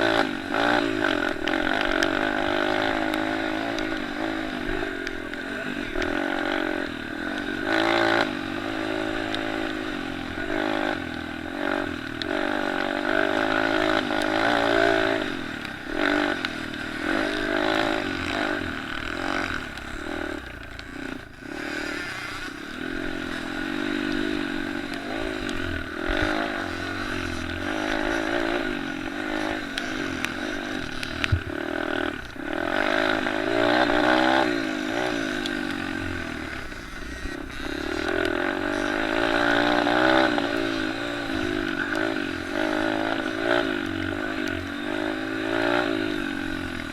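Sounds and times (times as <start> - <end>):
dirt bike engines revving: 0.0 - 46.9.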